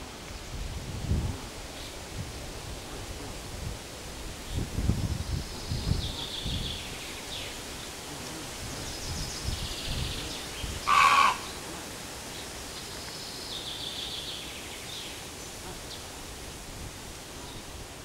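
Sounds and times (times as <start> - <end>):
steady outdoor hush: 0.0 - 18.0
songbirds trilling: 8.7 - 16.2
harsh bird call: 10.9 - 11.5.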